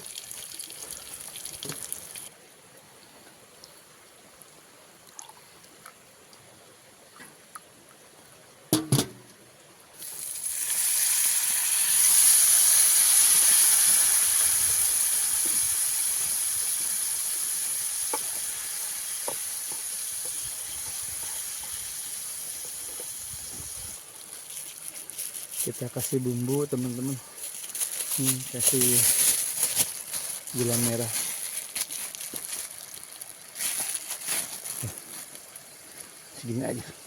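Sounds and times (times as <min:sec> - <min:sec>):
spices sizzling in a hot pan: 0:10.0 - 0:24.0.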